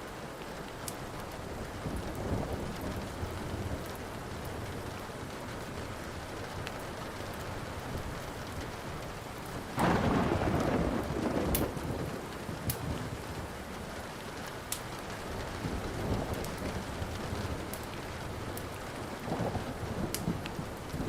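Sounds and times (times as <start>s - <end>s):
steady rain: 0.0s - 21.0s
thunder rumbling: 9.7s - 13.5s, 15.2s - 21.0s
loud thunderclap: 9.8s - 13.0s.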